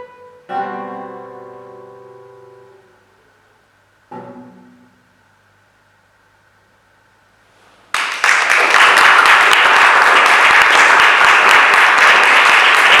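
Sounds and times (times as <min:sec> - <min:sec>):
audience applause: 0:07.9 - 0:13.0.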